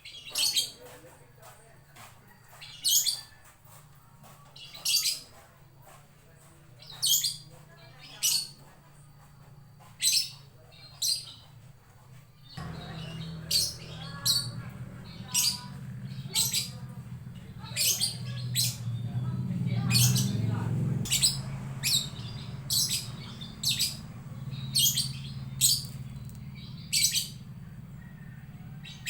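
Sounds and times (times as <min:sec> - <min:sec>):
lovebird squawking: 0:12.6 - 0:19.1, 0:19.7 - 0:27.5
low steady hum: 0:12.6 - 0:19.8.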